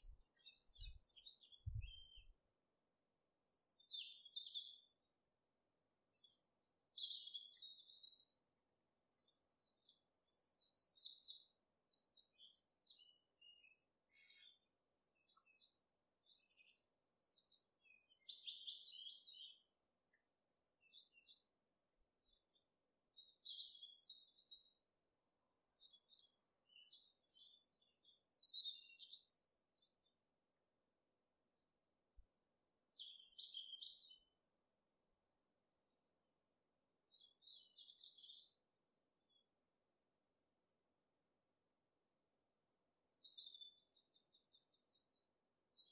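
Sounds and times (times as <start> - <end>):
birds chirping and singing: 0.0 - 2.3, 3.0 - 4.9, 6.2 - 8.3, 9.4 - 21.4, 22.9 - 24.8, 25.8 - 29.5, 32.5 - 34.2, 37.2 - 38.6, 42.8 - 44.8.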